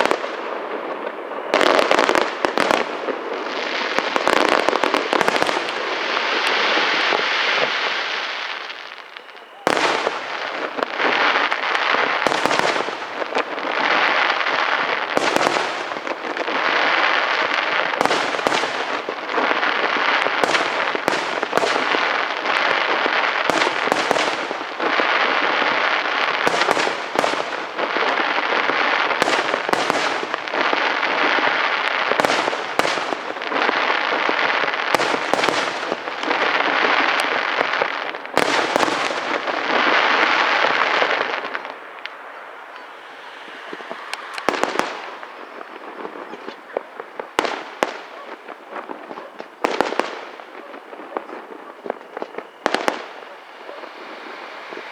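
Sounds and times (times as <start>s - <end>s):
fireworks bangs: 0.0s - 54.9s
fireworks crackling: 0.0s - 54.9s.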